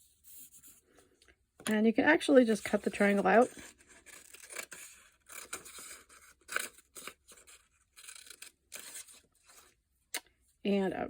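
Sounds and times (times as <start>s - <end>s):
scissors snipping paper: 2.8s - 9.2s.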